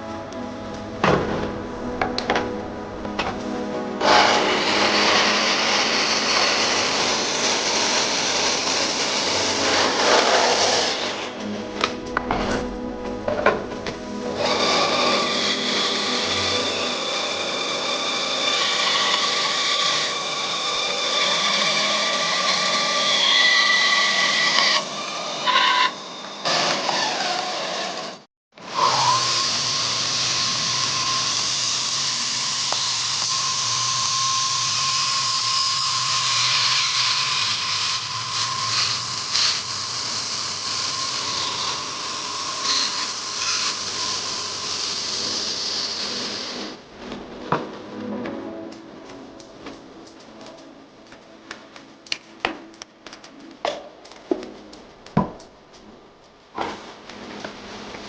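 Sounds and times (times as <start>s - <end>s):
power tool grinding metal: 3.0s - 46.8s.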